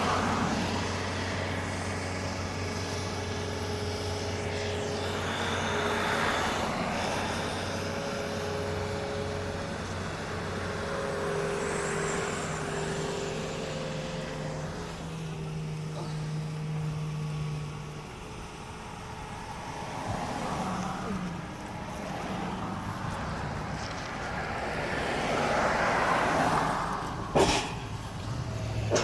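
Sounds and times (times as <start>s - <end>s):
car engine hum: 0.0s - 29.0s
road noise: 0.0s - 29.0s.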